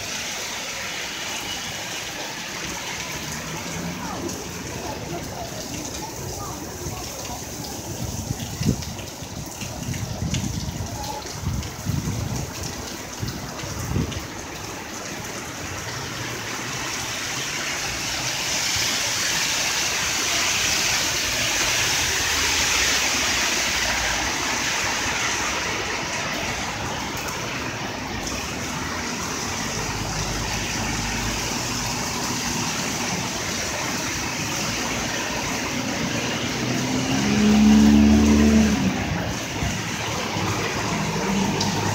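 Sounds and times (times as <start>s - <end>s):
heavy rain on street: 0.0s - 41.9s
tyres hissing through water: 0.0s - 41.9s
vehicle engine low drone: 35.4s - 41.9s.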